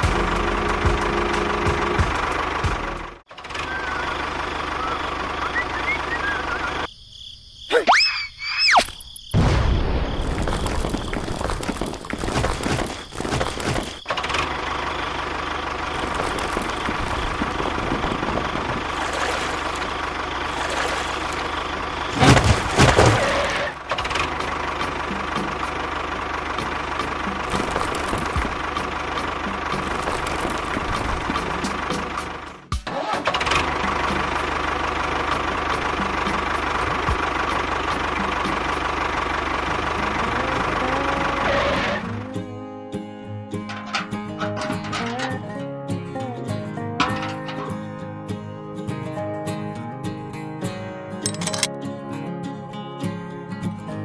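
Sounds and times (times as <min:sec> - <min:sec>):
engine idling: 0:00.0 - 0:06.9, 0:10.5 - 0:42.5.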